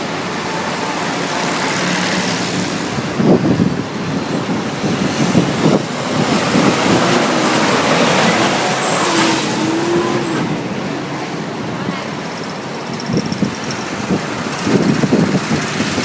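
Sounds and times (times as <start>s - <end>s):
tractor engines driving past: 0.0s - 16.0s
thin high whine: 6.0s - 10.8s.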